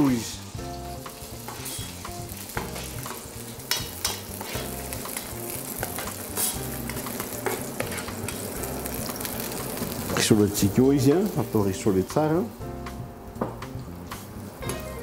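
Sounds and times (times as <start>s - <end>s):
onions sizzling in frying pan: 0.0s - 15.0s
metal spoon scraping pan: 1.5s - 2.0s, 3.7s - 4.9s, 5.8s - 8.5s.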